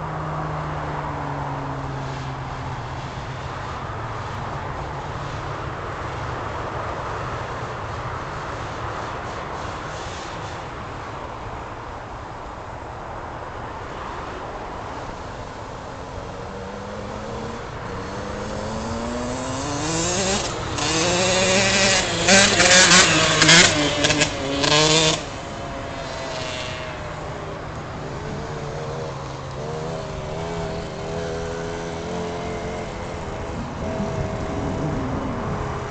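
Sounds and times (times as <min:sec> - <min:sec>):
motocross bike engine revving: 0:15.0 - 0:35.9.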